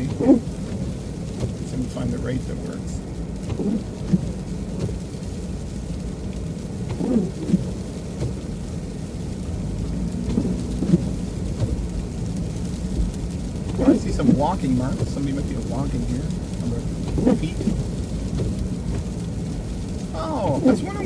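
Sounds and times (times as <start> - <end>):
windshield wipers squeaking: 0.0 - 1.6, 3.3 - 5.1, 6.8 - 8.6, 10.2 - 12.0, 12.7 - 21.0
freezing rain hitting vehicle: 0.0 - 21.0
truck engine rumble: 0.0 - 21.0.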